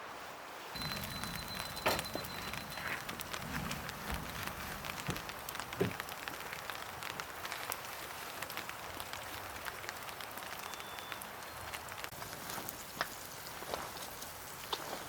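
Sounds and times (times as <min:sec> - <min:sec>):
light rain pattering: 0:00.0 - 0:15.0
soft knocks: 0:00.8 - 0:06.0.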